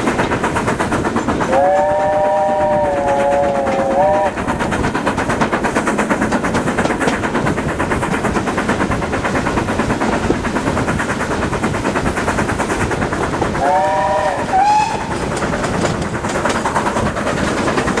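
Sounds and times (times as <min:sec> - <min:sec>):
train running with rapid beat: 0:00.0 - 0:18.0
train horn blast: 0:01.5 - 0:04.4, 0:13.6 - 0:15.1.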